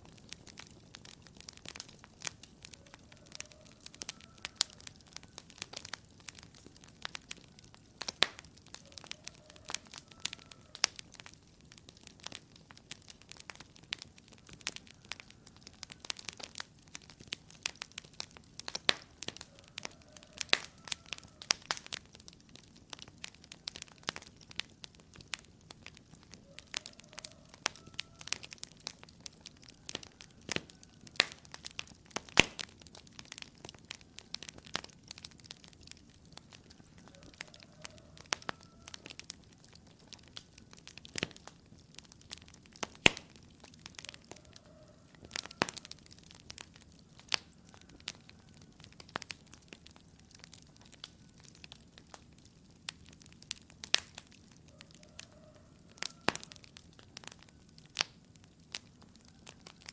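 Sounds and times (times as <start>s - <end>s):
soft steady hiss: 0.0s - 55.0s
wood fire crackling and popping: 0.0s - 59.9s.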